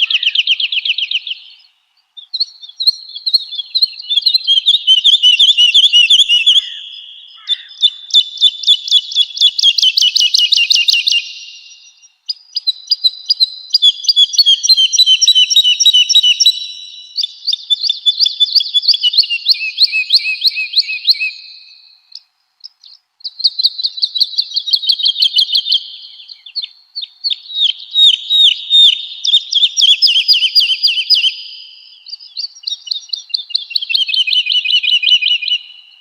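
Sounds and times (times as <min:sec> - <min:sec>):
bird singing whistled trills: 0:00.0 - 0:36.0.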